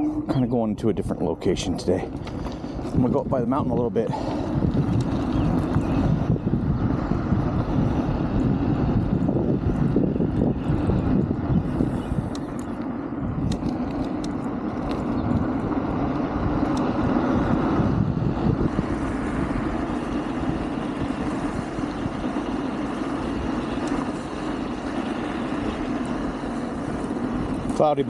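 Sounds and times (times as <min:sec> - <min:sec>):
scooter tyre rumble: 0:00.0 - 0:28.0
wind rushing over microphone: 0:00.0 - 0:28.0.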